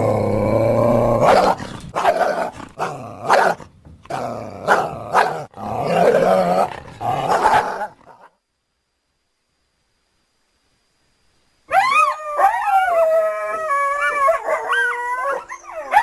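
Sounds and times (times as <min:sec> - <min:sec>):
creature barking and snapping: 0:00.0 - 0:08.2
creature growling: 0:00.0 - 0:08.2
creature snarling: 0:00.0 - 0:08.2.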